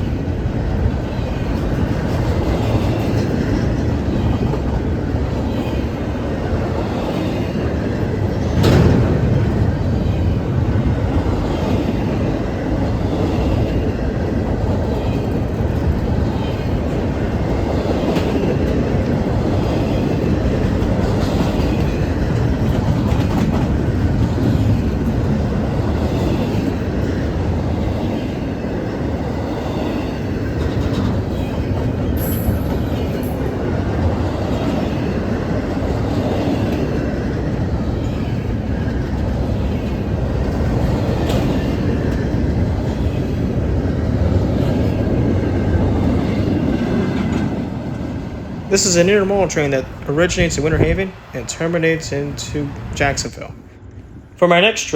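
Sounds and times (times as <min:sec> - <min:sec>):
freight train rumbling past: 0:00.0 - 0:54.9
wheels clicking over rail joints: 0:00.4 - 0:54.0
wheel squeak on rail: 0:31.3 - 0:33.5.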